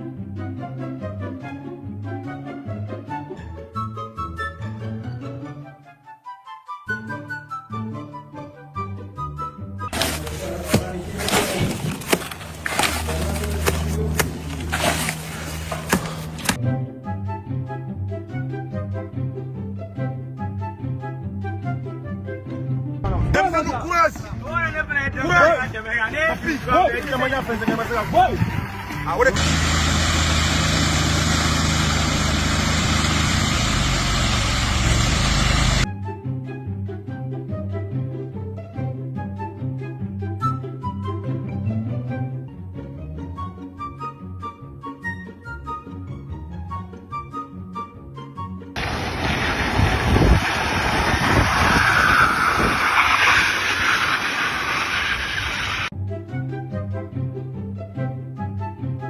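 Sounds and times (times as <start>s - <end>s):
plucked-string music: 8.2s - 23.8s
engine running: 10.0s - 16.6s, 24.2s - 35.9s, 48.8s - 55.9s
loud mechanical rumble: 26.4s - 35.9s
low hum: 28.5s - 35.9s
loud hiss: 29.4s - 35.8s, 48.8s - 55.9s.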